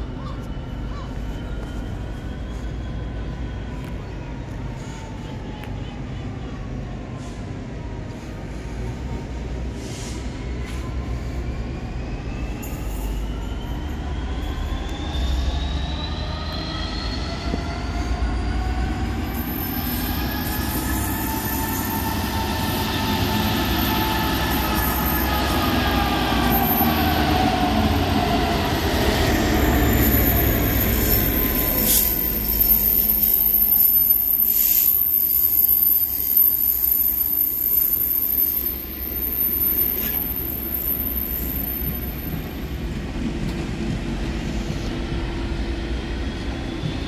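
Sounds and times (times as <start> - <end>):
train rumbling: 0.0 - 47.0
whining tones gliding in pitch: 12.3 - 42.7.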